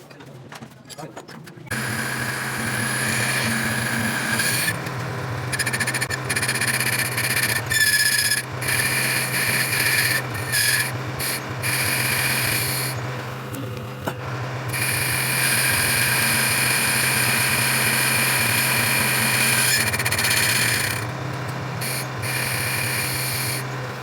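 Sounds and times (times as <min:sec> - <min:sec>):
high squeal of metal cutting: 0:01.7 - 0:13.1, 0:14.6 - 0:24.0
motor hum: 0:01.7 - 0:24.0.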